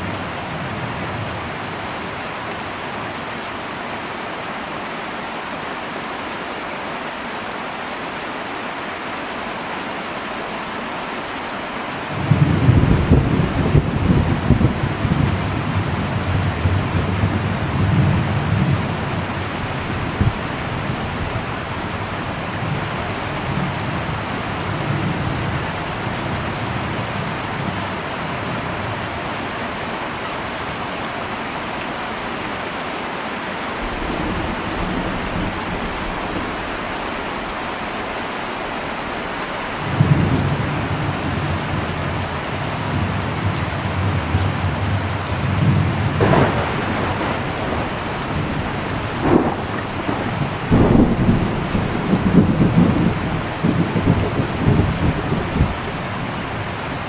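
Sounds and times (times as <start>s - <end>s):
heavy rain on a metal roof: 0.0s - 57.0s
thunder rumbling: 12.1s - 29.0s, 33.8s - 57.0s.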